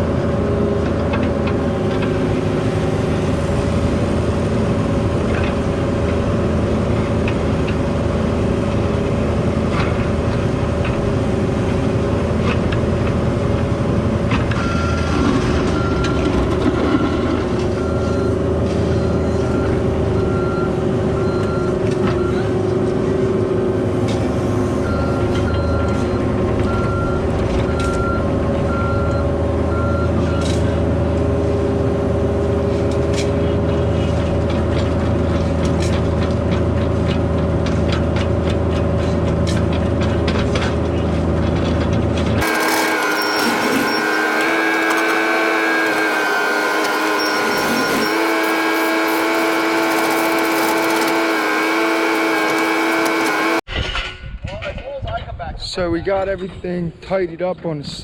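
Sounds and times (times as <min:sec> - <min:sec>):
diesel engine running: 0:00.0 - 0:53.7
backup alarm beeping: 0:24.8 - 0:30.5.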